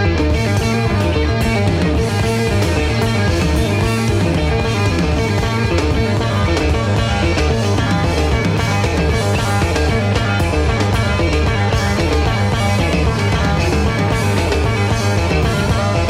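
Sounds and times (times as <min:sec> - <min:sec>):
bass line: 0:00.0 - 0:16.0
live rock band: 0:00.0 - 0:16.0.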